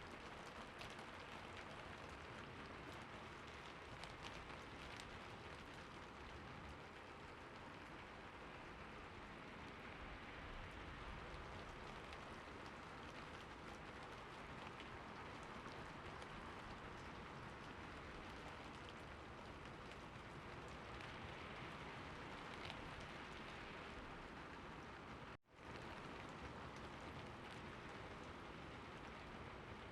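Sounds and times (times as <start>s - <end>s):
raindrops ticking: 0.0s - 8.1s
steady rain falling: 0.0s - 29.9s.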